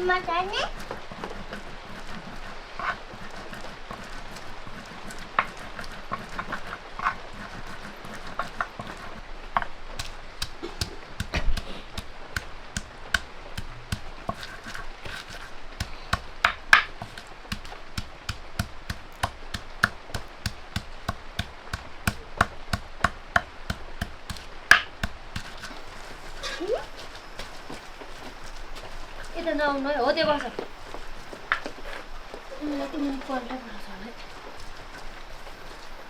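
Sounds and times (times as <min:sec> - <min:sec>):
chopping on wooden surface: 0:10.0 - 0:25.8
heavy knock on wood: 0:10.0 - 0:25.8.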